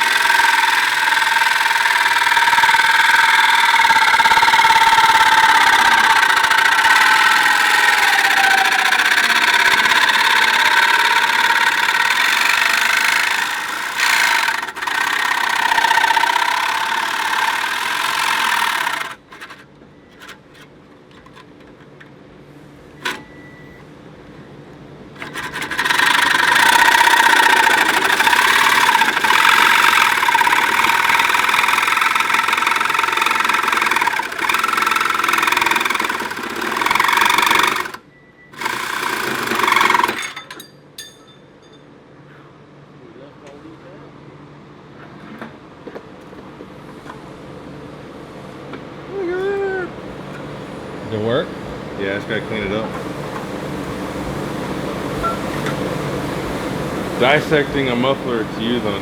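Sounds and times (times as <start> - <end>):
power tool whining under load: 0.0 - 21.8, 23.0 - 23.8, 25.2 - 40.7.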